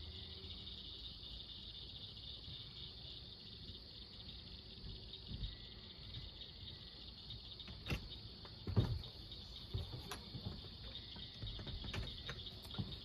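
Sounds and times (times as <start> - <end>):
night insects chirring: 0.0 - 13.0
knocks and thumps: 4.8 - 6.4, 7.6 - 13.0.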